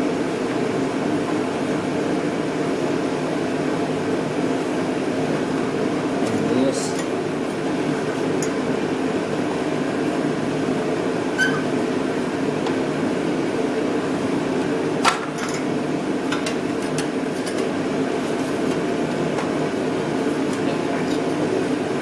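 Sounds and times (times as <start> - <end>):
shop machinery hum: 0.0 - 22.0.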